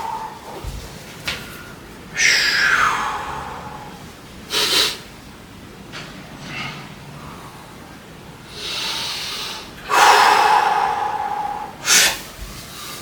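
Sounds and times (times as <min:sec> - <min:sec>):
person breathing hard: 0:00.0 - 0:00.8, 0:01.4 - 0:05.1, 0:07.2 - 0:13.0
strained voiced exhale: 0:08.8 - 0:12.3.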